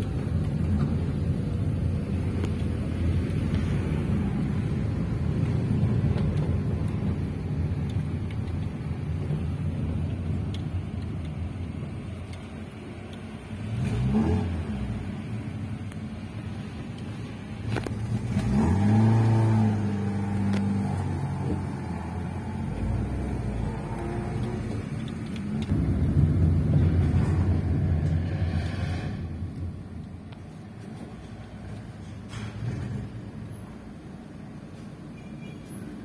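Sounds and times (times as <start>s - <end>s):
road noise inside car: 0.0s - 36.0s
car engine revving: 13.5s - 15.4s, 17.7s - 29.2s.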